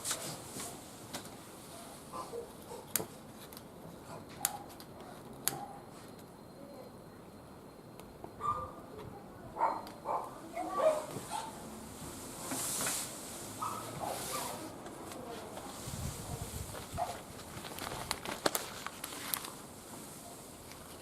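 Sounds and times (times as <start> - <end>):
wood fire crackling and popping: 16.7 - 19.6.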